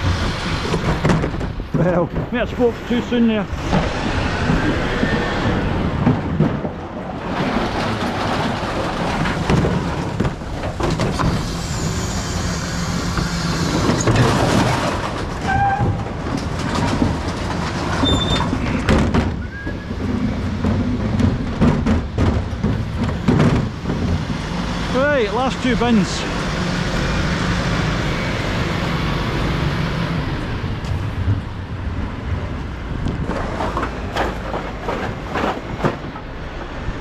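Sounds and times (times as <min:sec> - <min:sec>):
recycling rattling into hopper: 0:00.0 - 0:37.0
bin lift hydraulics: 0:10.9 - 0:16.0
truck engine running: 0:16.0 - 0:33.3
metal squeaks: 0:18.0 - 0:18.8.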